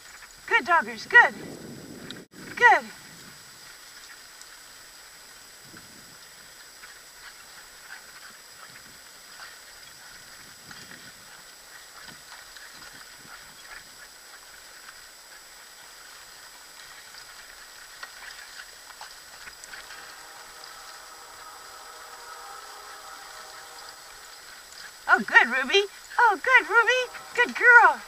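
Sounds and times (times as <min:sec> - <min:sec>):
small ticks and rattles: 0:03.1 - 0:25.1
paws padding on trail: 0:03.1 - 0:28.0
scooter rolling: 0:05.7 - 0:28.0.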